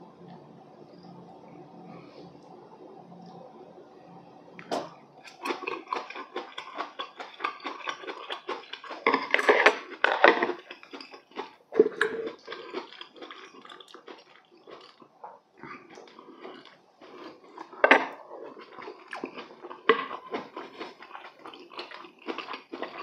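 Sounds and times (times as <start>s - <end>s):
faint steady hum: 0.0s - 23.0s
wet crackly chewing: 5.2s - 23.0s.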